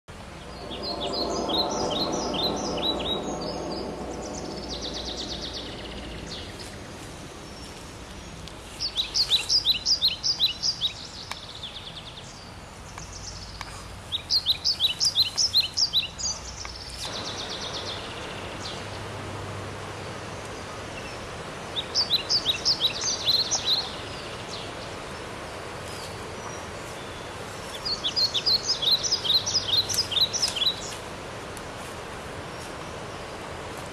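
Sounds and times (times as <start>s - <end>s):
outdoor background noise: 0.0s - 33.9s
loud low-pitched sound: 0.2s - 8.2s
bird singing high falling notes: 0.2s - 10.9s.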